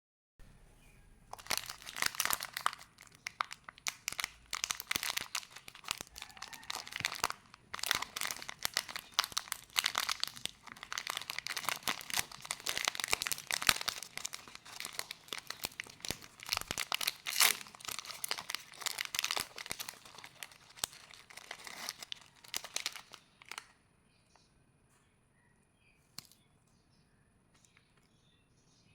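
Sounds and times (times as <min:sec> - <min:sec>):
wrapper crinkling and tearing: 0:01.3 - 0:23.7.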